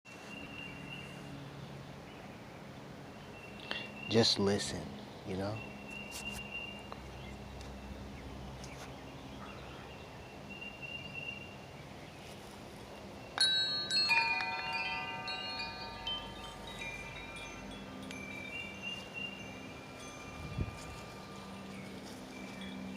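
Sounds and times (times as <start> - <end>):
wind chimes ringing: 13.4 - 22.9.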